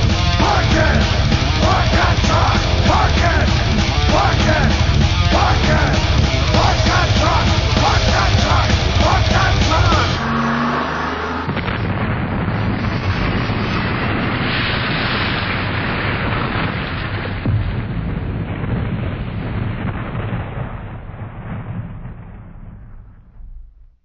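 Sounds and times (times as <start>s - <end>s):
heavy metal song: 0.0s - 11.9s
rumbling explosion-like noise: 0.0s - 24.0s.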